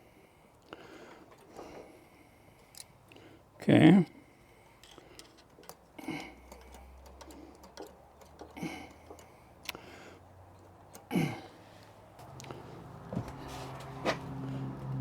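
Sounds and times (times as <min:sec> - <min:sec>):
hand tools clicking and tapping: 0:01.2 - 0:02.0, 0:02.6 - 0:03.3, 0:04.6 - 0:15.0.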